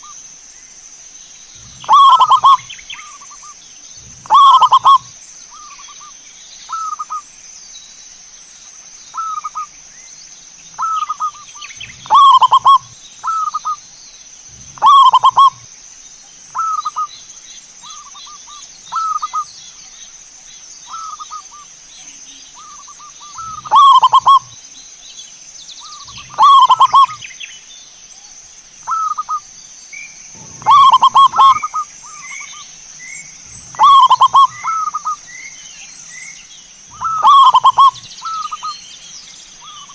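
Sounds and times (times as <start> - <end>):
dove cooing: 1.6 - 3.4, 4.0 - 5.1, 10.8 - 13.8, 14.5 - 15.7, 22.6 - 24.6, 25.8 - 27.2, 30.4 - 32.6, 33.4 - 35.3, 36.9 - 38.7
small bird chirping: 16.4 - 39.9
steady high-pitched tone: 30.4 - 31.8.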